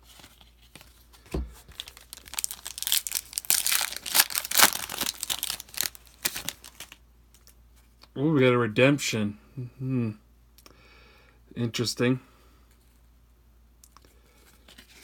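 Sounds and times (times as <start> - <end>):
wrapper crinkling and tearing: 1.7 - 7.5.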